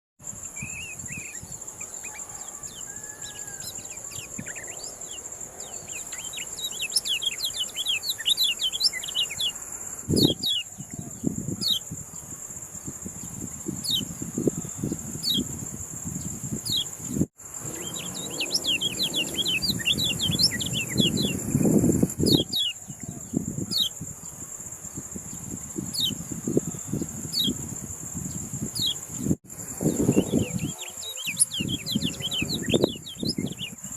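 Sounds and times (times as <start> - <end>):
songbird chirping: 0.3 - 15.6, 16.2 - 33.9
steady high-pitched whine: 17.4 - 22.2.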